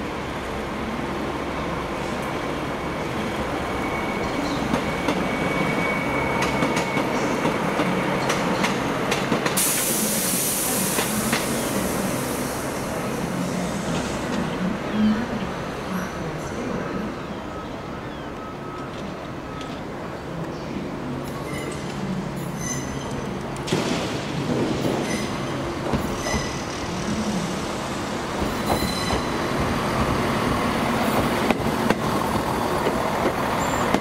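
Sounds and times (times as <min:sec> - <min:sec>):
train rumbling past: 0:00.0 - 0:20.3, 0:20.9 - 0:34.0
air hissing: 0:09.6 - 0:12.9.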